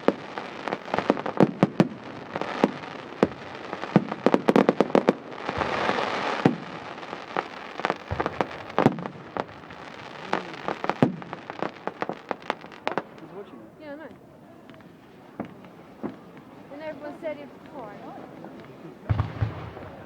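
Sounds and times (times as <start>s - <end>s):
fireworks banging and popping: 0.0s - 20.0s.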